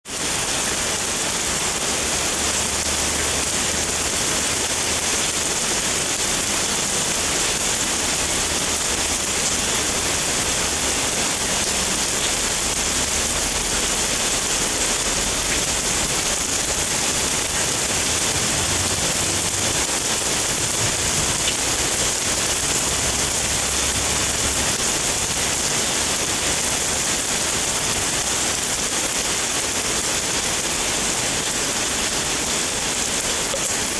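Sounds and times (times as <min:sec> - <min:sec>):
heavy rain on wooden deck: 0:00.0 - 0:33.9.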